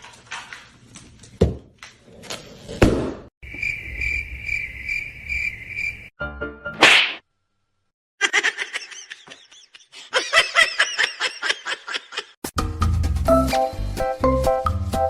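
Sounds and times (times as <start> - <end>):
high-pitched laughing calls: 8.2 - 12.4.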